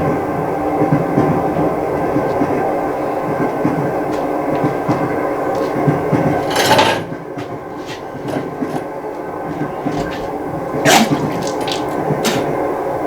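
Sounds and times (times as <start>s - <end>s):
rolling train rumble: 0.0s - 13.0s.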